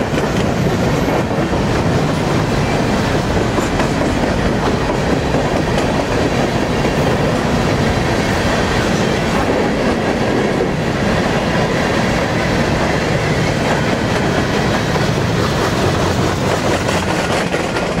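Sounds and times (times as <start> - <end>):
freight train rolling past: 0.0 - 18.0.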